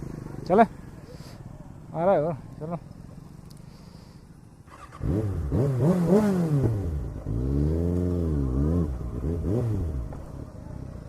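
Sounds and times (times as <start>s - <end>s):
motorcycle engine revving: 4.6s - 11.0s.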